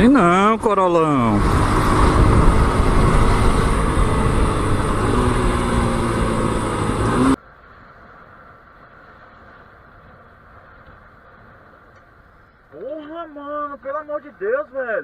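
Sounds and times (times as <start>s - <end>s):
motorcycle engine: 0.0s - 7.4s
low hum: 0.0s - 12.7s
road and wind noise: 0.0s - 15.0s.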